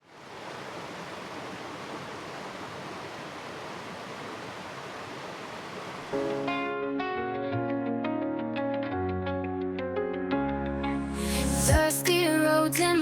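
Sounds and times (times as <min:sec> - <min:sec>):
stream water rushing: 0:00.0 - 0:06.4
guitar music: 0:06.2 - 0:13.0.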